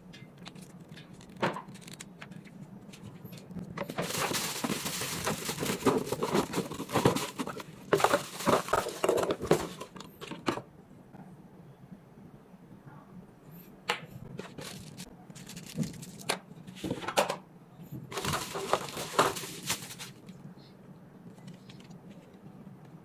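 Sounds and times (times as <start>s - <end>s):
packaging rustling: 3.9s - 10.0s, 14.4s - 16.3s, 18.1s - 20.3s.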